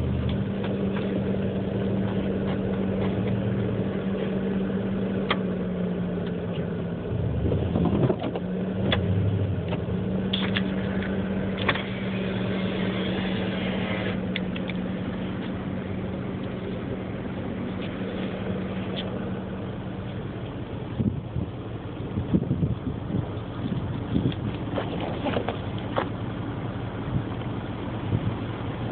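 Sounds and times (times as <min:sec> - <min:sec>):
engine humming: 0:00.0 - 0:28.9.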